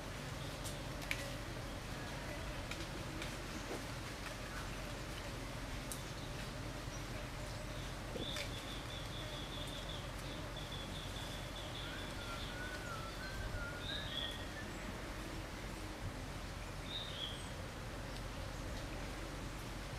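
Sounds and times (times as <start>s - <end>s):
forest ambience: 0.0s - 19.9s
bird wavering whistled call: 11.6s - 14.7s.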